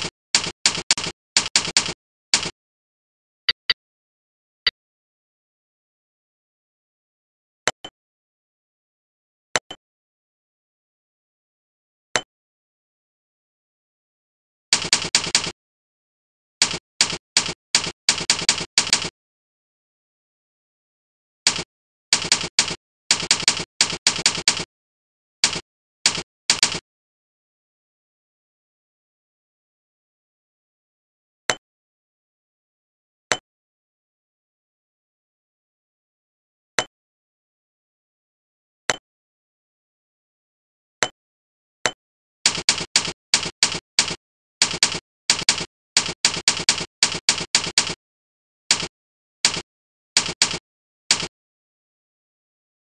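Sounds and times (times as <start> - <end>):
key-press sound effects: 3.5 - 3.8, 42.5 - 48.0.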